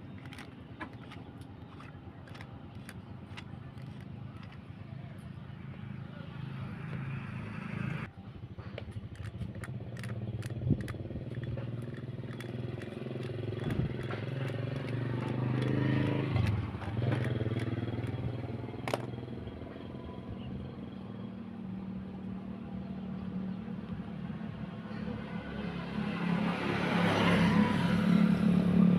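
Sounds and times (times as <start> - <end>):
motorcycle engine running: 8.9 - 19.6.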